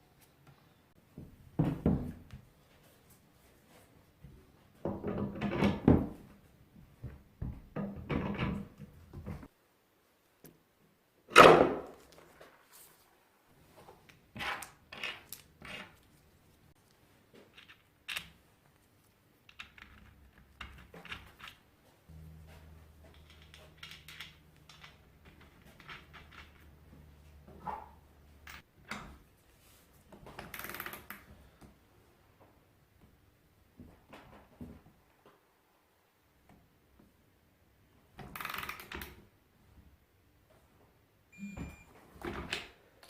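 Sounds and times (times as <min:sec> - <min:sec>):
low steady hum: 0:22.1 - 0:25.2.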